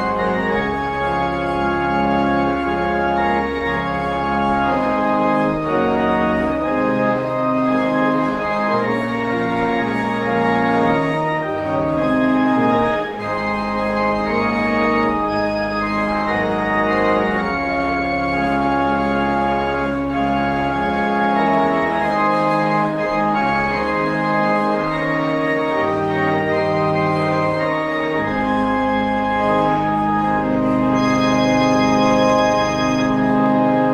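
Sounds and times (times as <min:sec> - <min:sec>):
organ playing sustained chords: 0:00.0 - 0:33.9.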